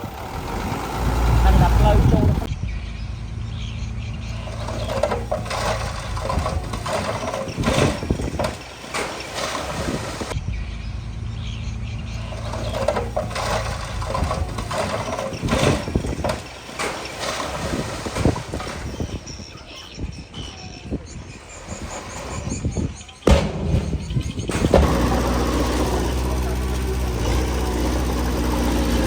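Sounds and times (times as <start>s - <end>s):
bulldozer diesel engine running: 0.0s - 17.2s, 23.3s - 29.0s
metal knocks and clanks: 4.6s - 10.0s, 12.4s - 18.8s, 23.2s - 29.0s.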